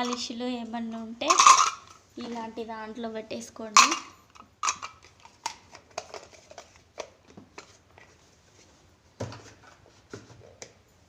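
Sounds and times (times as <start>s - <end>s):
small bottles clicking and knocking: 0.0s - 0.4s, 1.2s - 2.4s, 3.7s - 7.8s.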